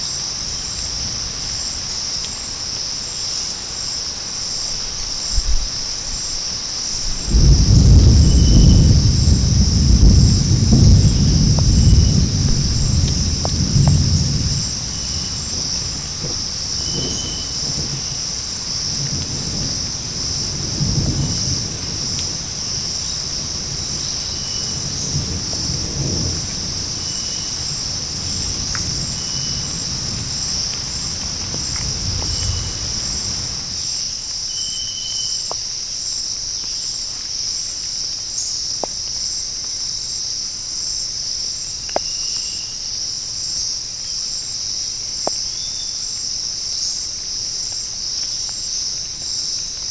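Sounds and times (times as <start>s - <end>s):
insect chirps: 0.0s - 49.9s
insect chorus buzzing: 0.0s - 49.9s.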